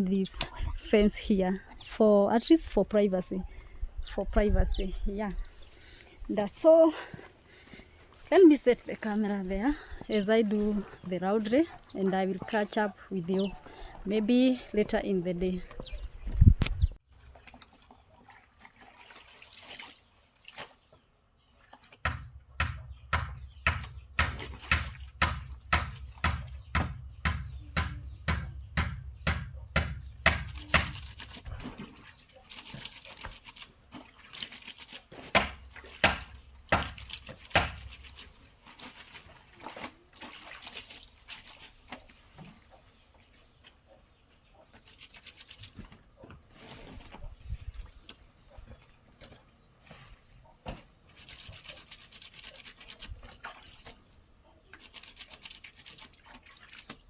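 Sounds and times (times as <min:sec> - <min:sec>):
water splashes: 0:17.2 - 0:20.8, 0:36.6 - 0:42.2, 0:54.8 - 0:57.0
hand scrubbing clothes in water: 0:17.2 - 0:21.0, 0:30.5 - 0:42.7, 0:44.6 - 0:45.9, 0:51.0 - 0:57.0.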